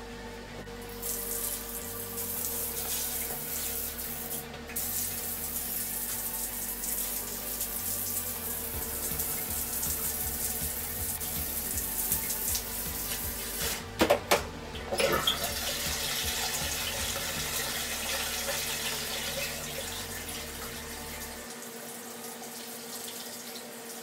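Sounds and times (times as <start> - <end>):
water spray hissing on tiles: 1.0 - 13.9.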